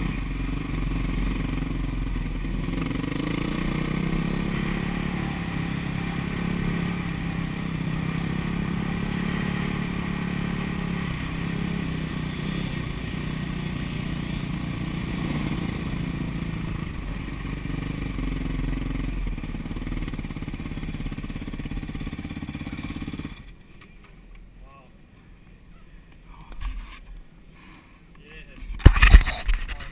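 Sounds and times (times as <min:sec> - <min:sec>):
motocross bike engine running: 0:00.0 - 0:23.5.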